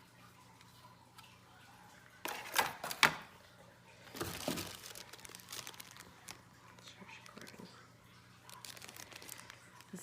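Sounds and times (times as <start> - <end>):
plastic packaging crinkling: 4.0 - 10.0.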